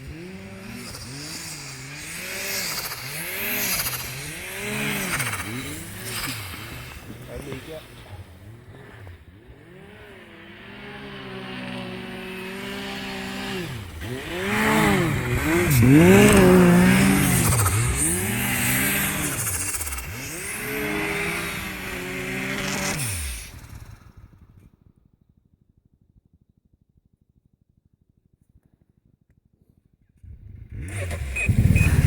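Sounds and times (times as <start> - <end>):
snowmobile engine revving: 0.0 - 24.7, 30.2 - 32.0
turbo flutter: 0.5 - 10.2, 11.9 - 25.0, 29.6 - 32.0.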